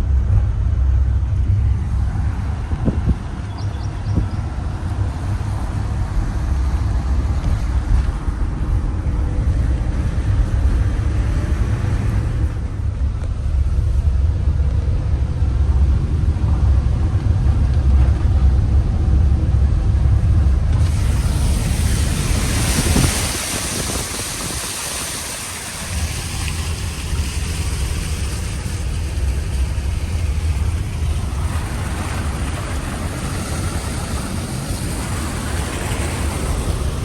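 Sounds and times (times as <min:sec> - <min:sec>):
vehicle engine and road rumble: 0:00.0 - 0:37.0
loud hiss: 0:20.8 - 0:37.0.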